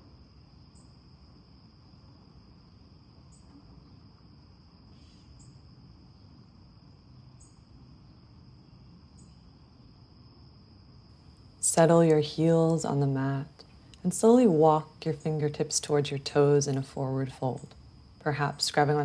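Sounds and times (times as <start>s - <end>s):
insect chirps: 0.0s - 19.0s
insects trilling: 0.0s - 19.0s.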